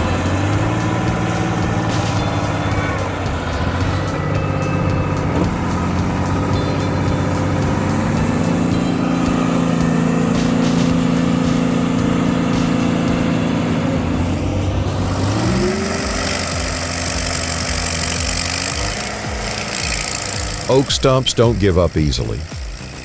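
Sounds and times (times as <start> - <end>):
heavy machine engine revving: 0.0 - 23.0.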